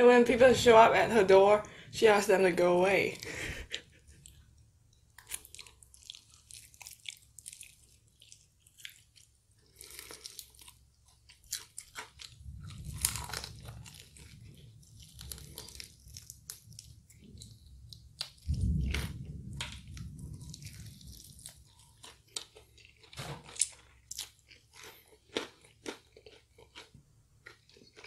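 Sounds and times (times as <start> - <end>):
crunchy chewing: 3.2 - 28.0.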